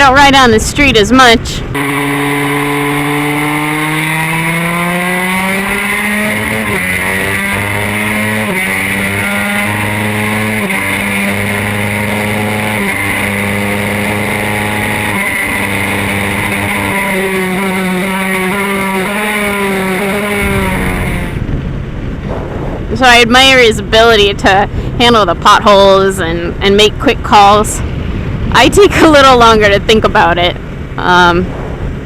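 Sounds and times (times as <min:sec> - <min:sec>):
motorcycle engine accelerating: 0:01.6 - 0:25.8, 0:27.8 - 0:32.0.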